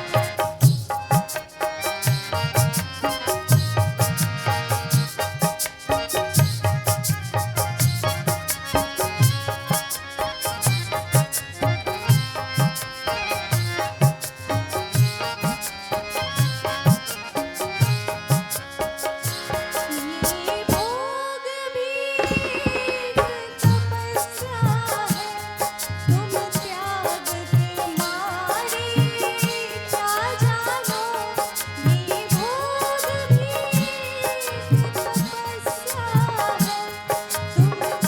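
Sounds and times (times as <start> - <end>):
hand drums playing steady beat: 0.0 - 21.0, 22.2 - 38.0
harmonium: 0.0 - 38.0
person singing gliding line: 19.4 - 38.0.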